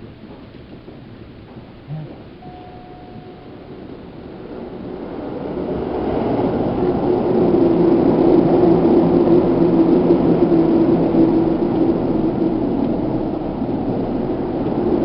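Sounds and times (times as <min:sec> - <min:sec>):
low even hum: 0:00.0 - 0:05.6
train wheels rumbling on rail: 0:00.0 - 0:15.0.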